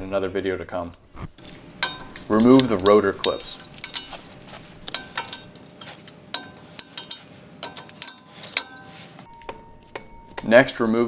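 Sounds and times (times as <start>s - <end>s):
small metallic clicks and clinks: 1.4s - 9.3s.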